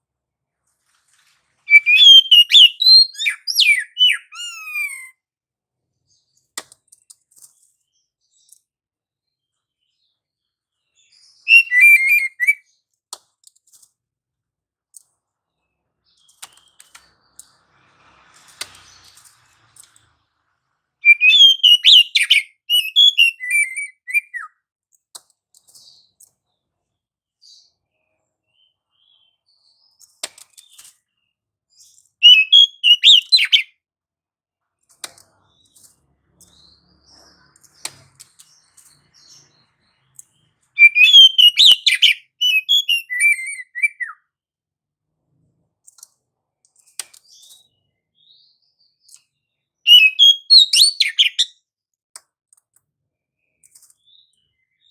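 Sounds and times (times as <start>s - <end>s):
bird singing high chattering notes: 1.7s - 5.2s, 11.0s - 12.6s, 21.0s - 24.5s, 32.2s - 33.7s, 40.4s - 44.2s, 49.9s - 51.5s.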